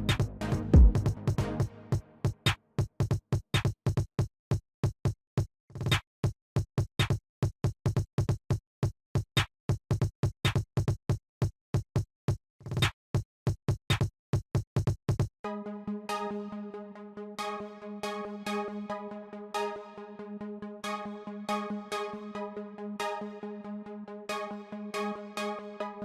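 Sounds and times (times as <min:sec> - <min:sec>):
fast drum machine beat: 0:00.0 - 0:01.4, 0:09.4 - 0:11.2, 0:12.0 - 0:15.3
electronic dance music: 0:00.0 - 0:01.9, 0:15.5 - 0:26.0.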